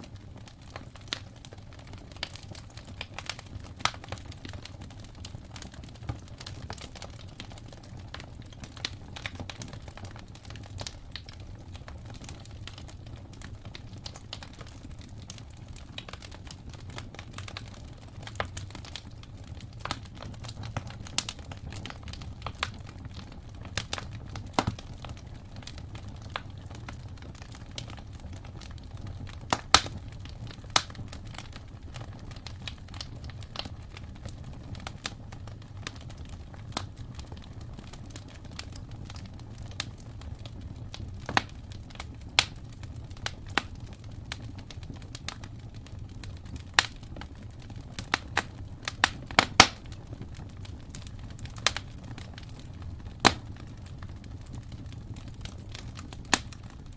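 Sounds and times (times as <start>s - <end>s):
low fire rumble: 0.0s - 56.9s
wood fire crackling and popping: 0.0s - 56.9s.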